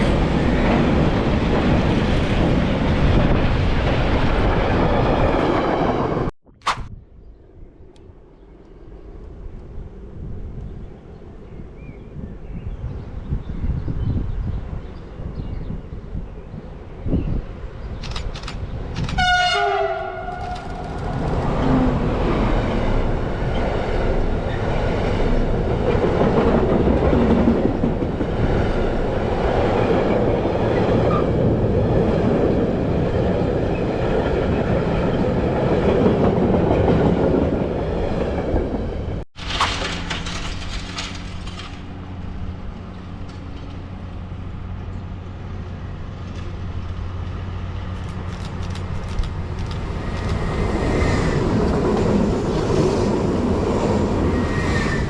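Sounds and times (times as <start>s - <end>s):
train wheels rumbling on rails: 0.0s - 6.3s, 12.2s - 55.0s
train horn blast: 19.1s - 20.9s.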